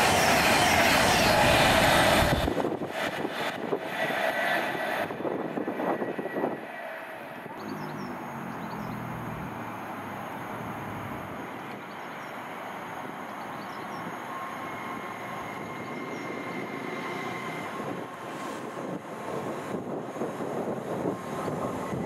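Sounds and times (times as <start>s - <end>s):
train wheels rumbling on rail: 0.0s - 7.8s, 10.6s - 22.0s
faint bird chirps: 7.5s - 9.2s.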